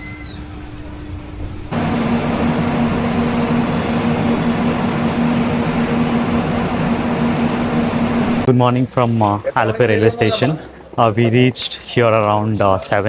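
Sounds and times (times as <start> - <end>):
mechanical running roar with low hum: 0.0 - 8.5.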